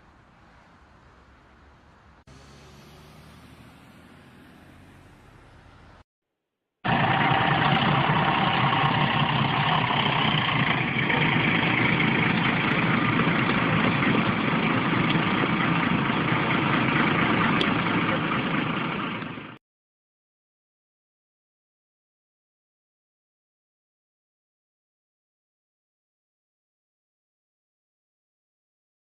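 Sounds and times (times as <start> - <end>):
vehicle engine and road noise: 0.0 - 6.1, 6.8 - 19.6.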